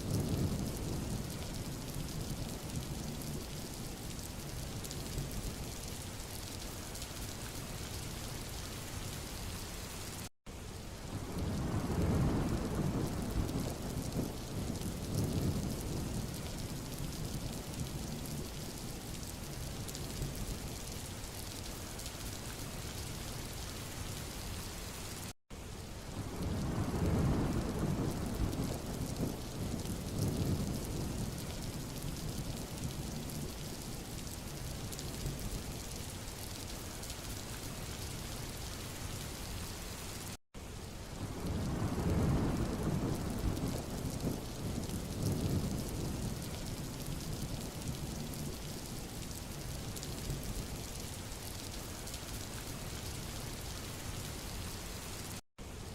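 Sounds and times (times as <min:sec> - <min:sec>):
rain falling on a road: 0:00.0 - 0:55.9.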